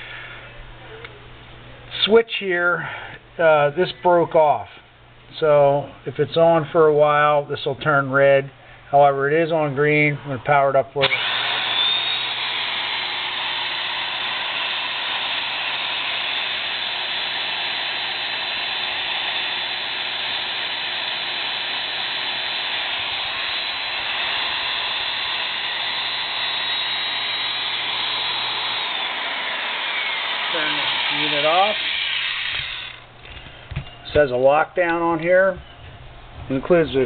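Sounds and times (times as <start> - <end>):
drill press motor whirring: 11.0 - 33.4.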